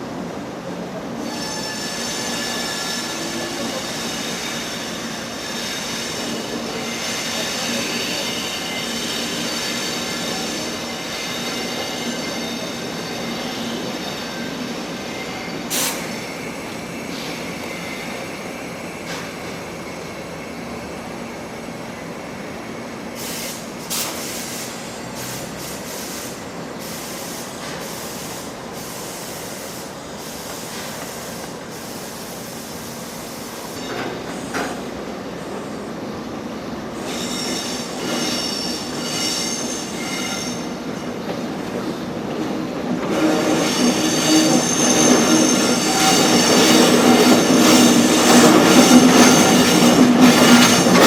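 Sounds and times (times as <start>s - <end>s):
high wheel squeal: 1.2s - 19.3s, 36.9s - 41.8s, 43.1s - 51.0s.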